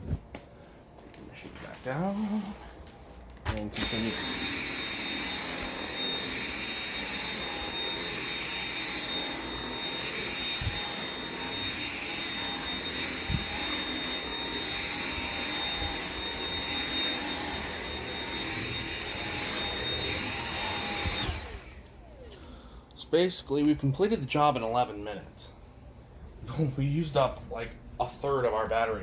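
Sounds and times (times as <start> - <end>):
vacuum cleaner whine: 3.5 - 22.8.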